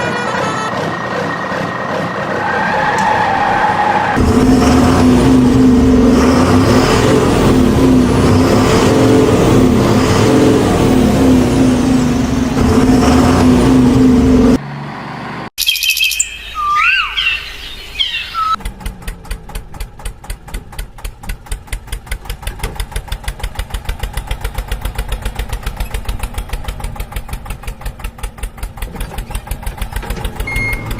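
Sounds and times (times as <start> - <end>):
vehicle engine running loudly: 0.0 - 3.1, 4.2 - 15.4, 18.6 - 30.9
birds chirping whistles: 15.6 - 18.6.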